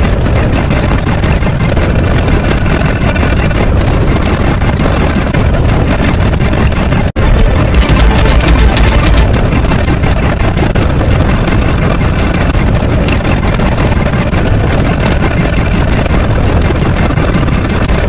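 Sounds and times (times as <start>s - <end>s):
loud engine-like hum: 0.0s - 18.0s.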